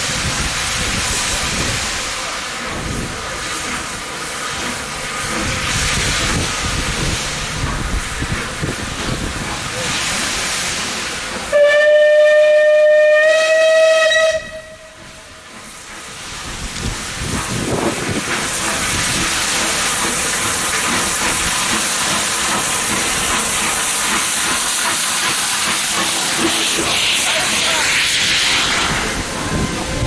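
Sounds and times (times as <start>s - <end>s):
hiss of escaping steam: 0.0s - 13.9s, 14.9s - 30.0s
steam locomotive whistle: 11.5s - 15.2s.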